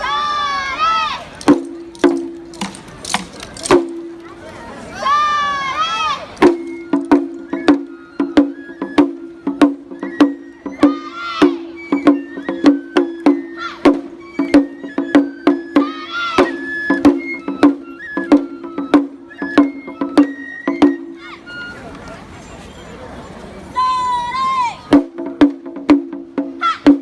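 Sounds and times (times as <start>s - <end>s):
sharp percussive strikes: 1.4s - 4.3s, 6.4s - 21.1s.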